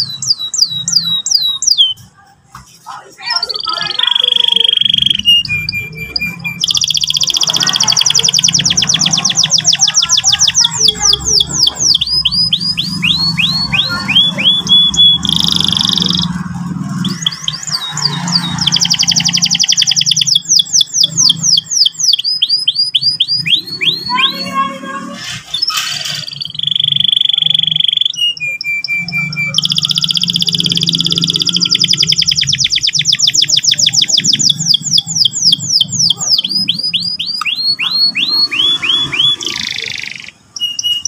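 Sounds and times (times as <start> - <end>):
canary singing trills: 0.0 - 2.3, 3.2 - 41.0.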